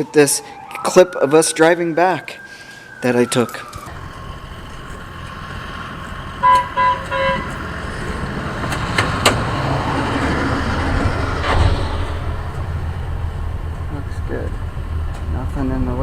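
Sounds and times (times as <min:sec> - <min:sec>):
rail vehicle rumbling on track: 0:03.9 - 0:16.0
horn toots: 0:06.4 - 0:07.6.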